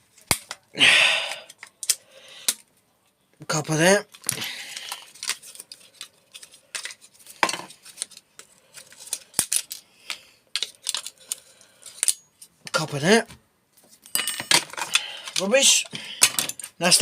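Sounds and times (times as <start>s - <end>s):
small metal parts clinking: 14.0s - 16.8s.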